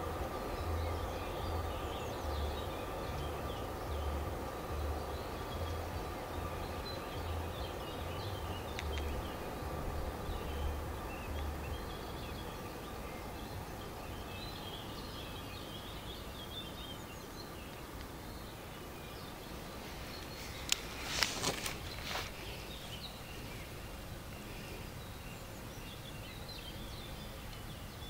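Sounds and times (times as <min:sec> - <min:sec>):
small birds chirping: 0:00.0 - 0:28.0
steady outdoor hiss: 0:00.0 - 0:28.0.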